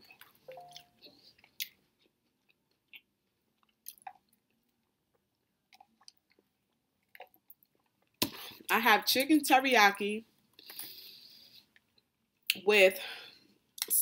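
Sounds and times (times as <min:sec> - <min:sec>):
person chewing: 0:00.1 - 0:08.6.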